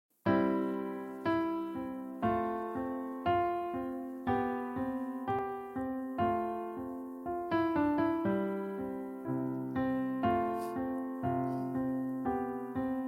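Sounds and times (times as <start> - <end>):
piano chords: 0.2 - 13.0.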